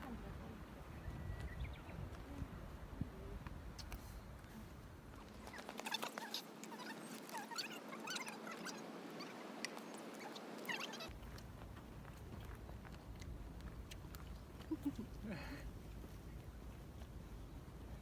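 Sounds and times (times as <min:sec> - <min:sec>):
faint outdoor hiss: 0:00.0 - 0:18.0
high squeaky chirps: 0:05.4 - 0:11.1.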